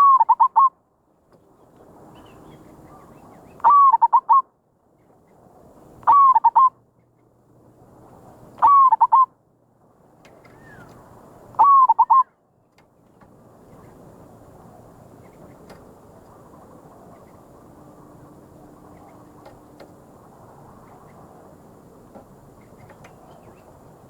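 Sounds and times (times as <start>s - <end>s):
dove cooing: 8.6s - 9.3s, 11.6s - 12.2s.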